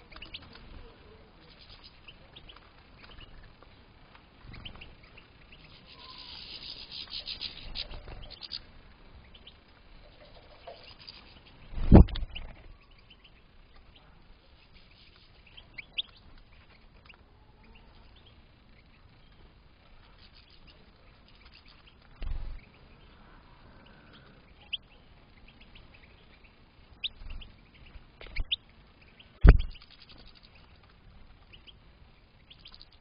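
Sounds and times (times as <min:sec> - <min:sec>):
low thumps: 0:11.7 - 0:12.6, 0:29.4 - 0:29.9.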